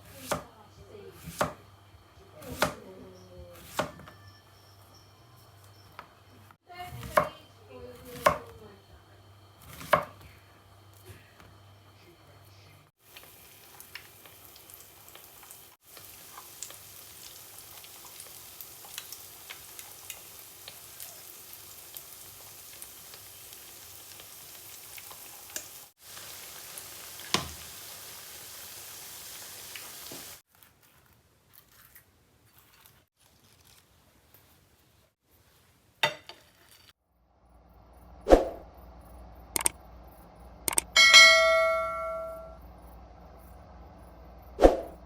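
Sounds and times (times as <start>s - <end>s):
food sizzling in a hot pan: 13.0s - 30.4s.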